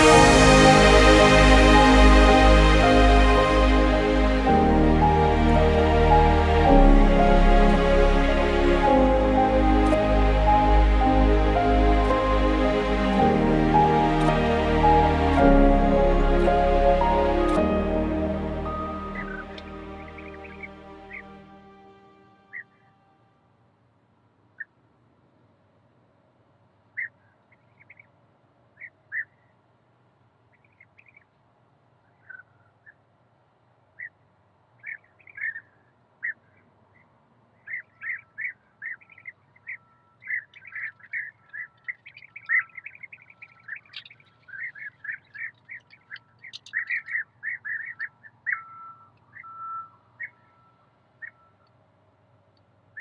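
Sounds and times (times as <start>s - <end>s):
small birds chirping: 37.6s - 51.5s.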